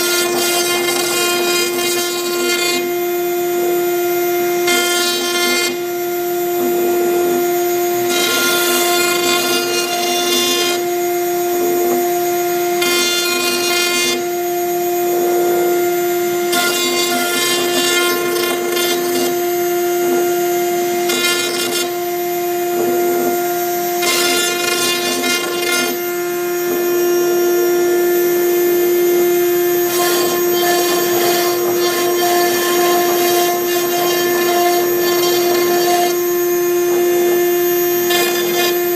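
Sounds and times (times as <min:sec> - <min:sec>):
bit cutting wood: 0:00.0 - 0:38.9
router spindle whining: 0:00.0 - 0:38.9.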